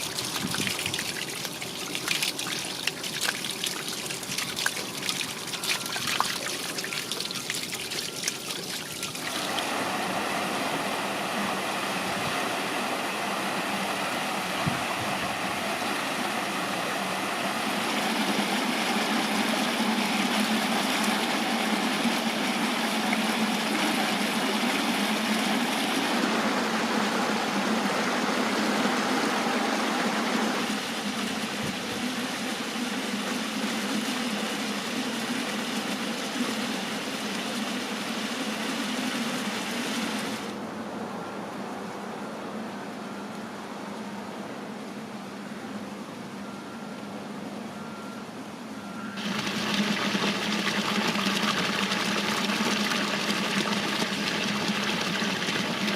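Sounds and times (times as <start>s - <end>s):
water trickling down cascades: 0.0s - 10.8s, 49.2s - 55.9s
rush of flowing water: 0.0s - 44.5s, 49.2s - 55.9s.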